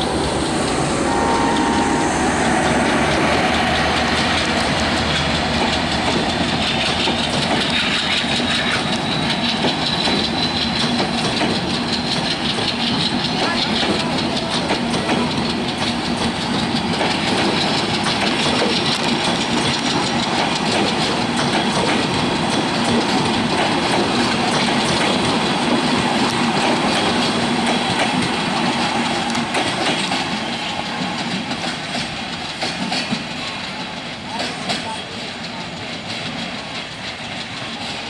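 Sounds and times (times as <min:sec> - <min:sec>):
train wheels rumbling on rail: 0:00.0 - 0:38.0
clickety-clack over rail joints: 0:02.4 - 0:38.0.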